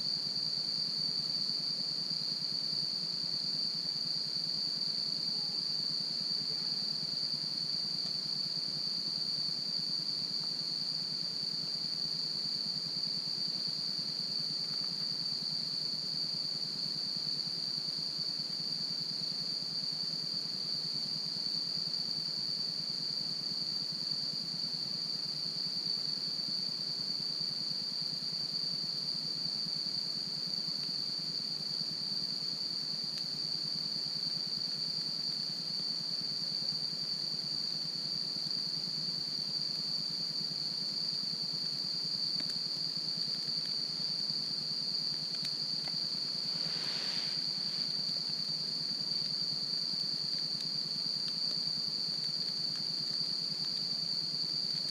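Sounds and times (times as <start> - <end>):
insects trilling: 0.0 - 54.9
campfire hissing and crackling: 11.3 - 54.9.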